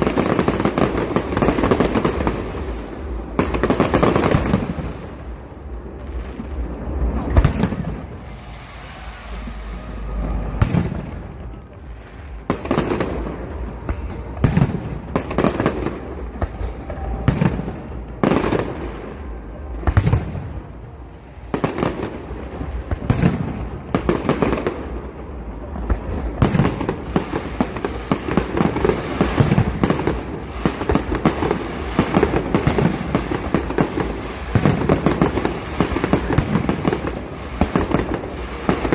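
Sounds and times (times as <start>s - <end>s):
fireworks bangs with echoes: 0.0s - 38.9s
fireworks crackle: 0.0s - 38.9s.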